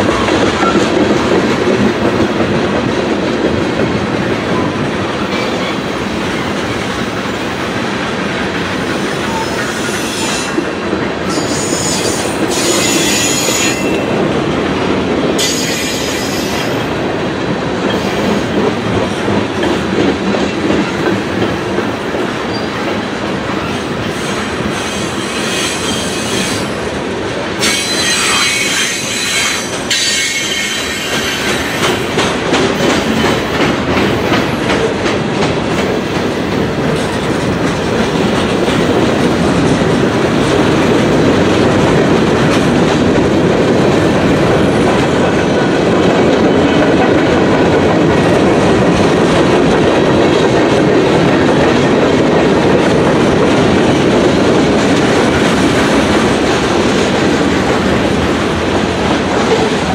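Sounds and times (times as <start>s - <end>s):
train wheels clacking over rail joints: 0.0s - 59.9s
steel wheels squealing on rail: 5.3s - 7.5s, 8.8s - 14.1s, 15.4s - 16.8s, 17.9s - 18.5s, 22.5s - 22.9s, 23.6s - 26.9s, 27.6s - 32.2s, 32.8s - 34.6s.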